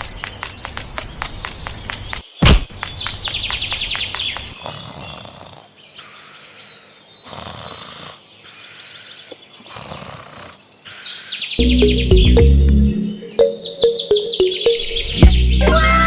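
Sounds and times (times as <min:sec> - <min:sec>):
bird chirps: 0:11.4 - 0:15.8
rapid falling trill: 0:11.6 - 0:15.4.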